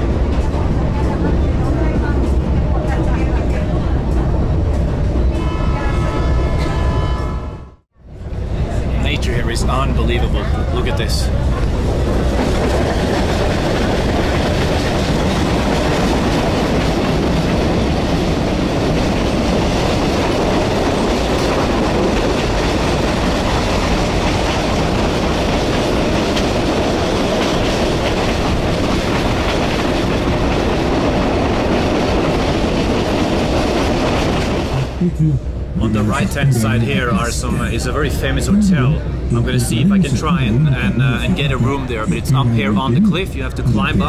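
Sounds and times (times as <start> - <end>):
train wheels on rails: 10.4 - 35.0.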